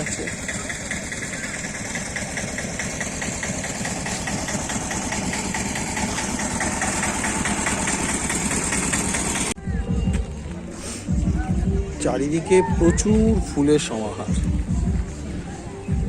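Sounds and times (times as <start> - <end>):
regular ticking: 0.0 - 9.6
engine idling: 0.0 - 16.0.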